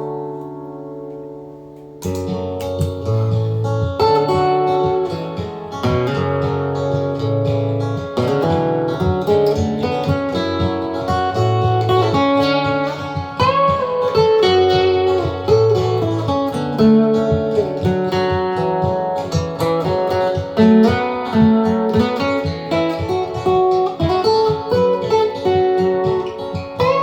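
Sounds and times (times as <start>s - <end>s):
acoustic guitar strummed and picked: 0.0s - 27.0s.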